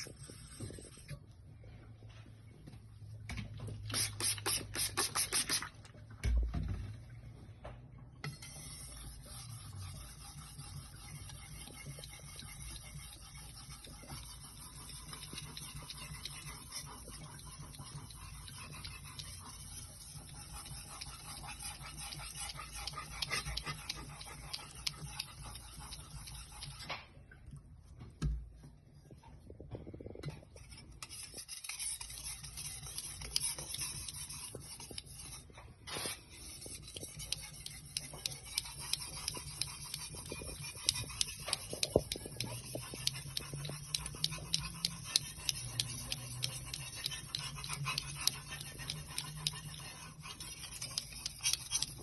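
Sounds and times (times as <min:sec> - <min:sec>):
blade scraping on whetstone: 0:08.3 - 0:26.8, 0:31.0 - 0:52.0.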